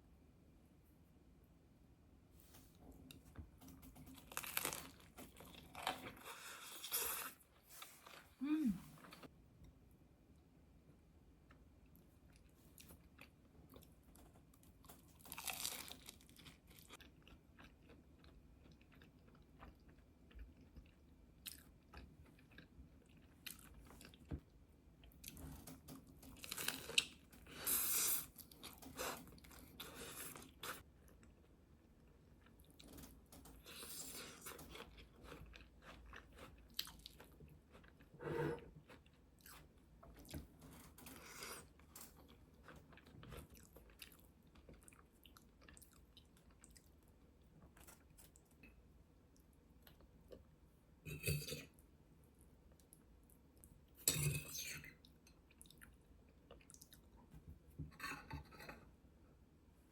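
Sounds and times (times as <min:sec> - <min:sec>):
person chewing crunchy food: 0:04.1 - 0:07.4, 0:15.1 - 0:24.3, 0:33.6 - 0:46.9.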